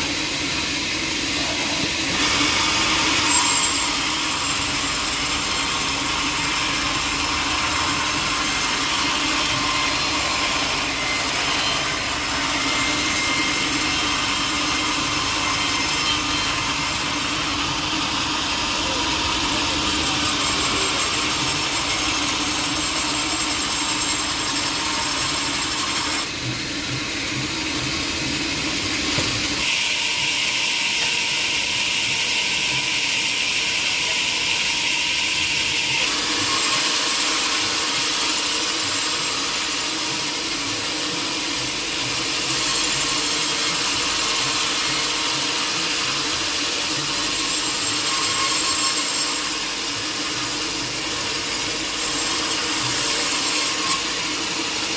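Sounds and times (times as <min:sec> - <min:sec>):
saw blade cutting log: 0:00.0 - 0:54.9.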